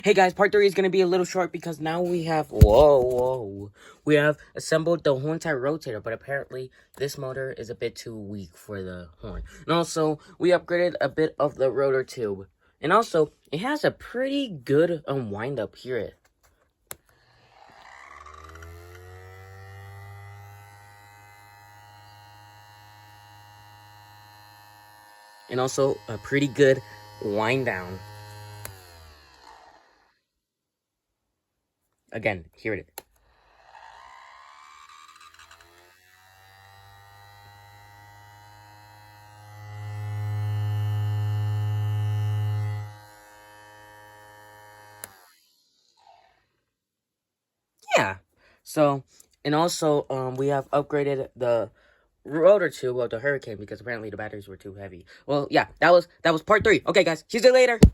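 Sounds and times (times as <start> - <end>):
click: 28.6 - 28.8.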